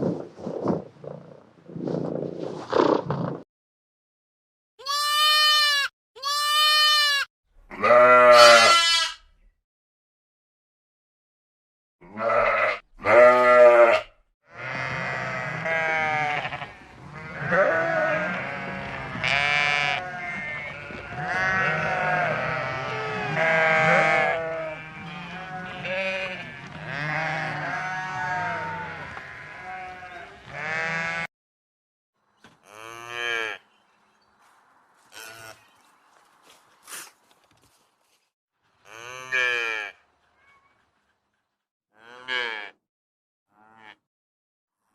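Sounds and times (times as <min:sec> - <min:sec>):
sheep bleating: 0:04.8 - 0:09.3, 0:12.0 - 0:31.3.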